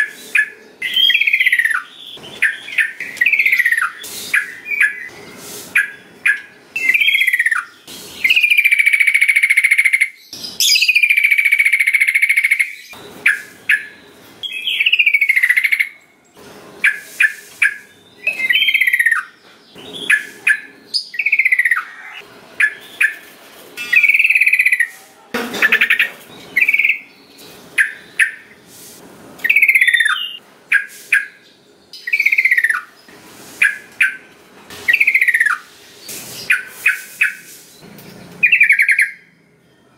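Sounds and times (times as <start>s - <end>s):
bird singing whistled notes: 0.0s - 16.0s, 16.9s - 23.2s, 26.5s - 27.2s, 29.4s - 32.9s, 38.4s - 39.9s.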